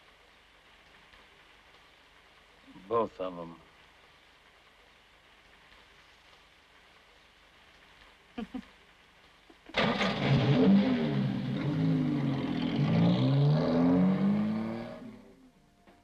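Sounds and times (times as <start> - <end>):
car engine starting and revving: 9.7 - 15.4.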